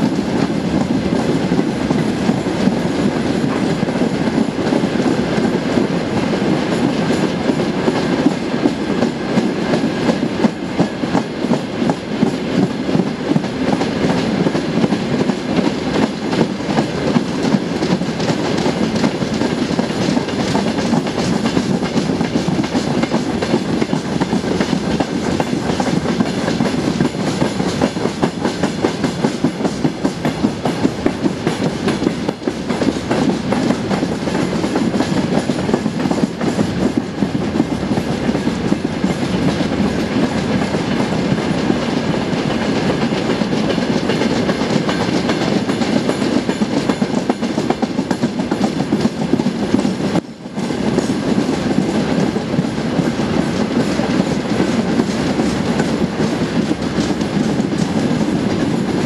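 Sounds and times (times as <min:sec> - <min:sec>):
train wheels clattering over rail joints: 0:00.0 - 0:59.0.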